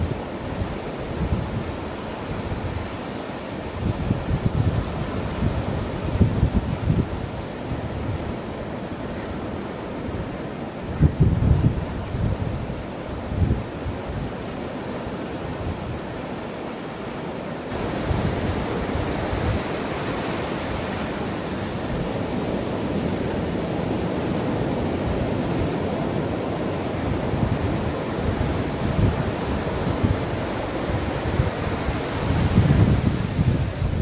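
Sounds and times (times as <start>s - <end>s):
wind buffeting microphone: 0.0s - 16.6s, 17.7s - 34.0s
sea waves breaking on beach: 0.0s - 34.0s.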